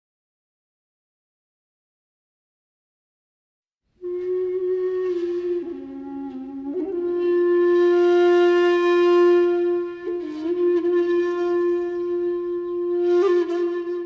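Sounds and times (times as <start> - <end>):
bamboo flute long note: 4.0 - 14.0.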